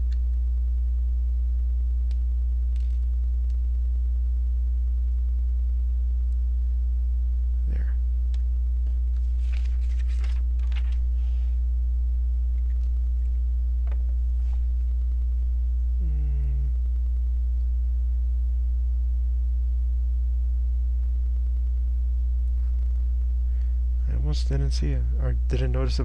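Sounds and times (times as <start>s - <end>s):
low electrical hum: 0.0s - 26.0s
person humming hmm: 16.0s - 16.9s.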